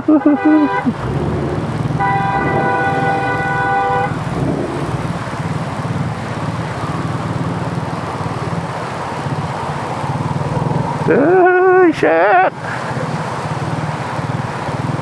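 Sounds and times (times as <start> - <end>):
vehicle horn: 0.1 - 0.9, 1.9 - 4.3
motorcycle engine running: 0.6 - 11.8, 12.6 - 15.0.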